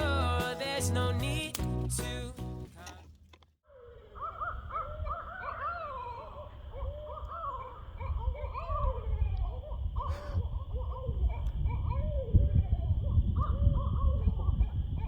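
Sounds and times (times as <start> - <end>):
coyotes yipping and whining: 3.7 - 15.0.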